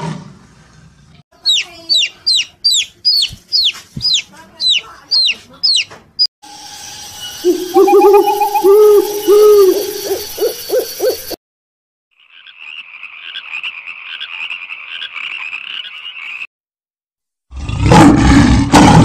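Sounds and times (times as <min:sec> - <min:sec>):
low hooting animal calls: 0:07.4 - 0:11.4
pulsing chorus of animal calls: 0:07.4 - 0:11.4.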